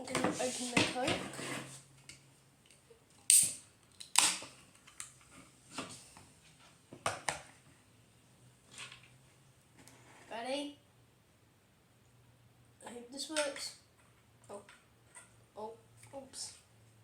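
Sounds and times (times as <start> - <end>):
carbonation hissing from bottle cap: 3.3 - 3.6.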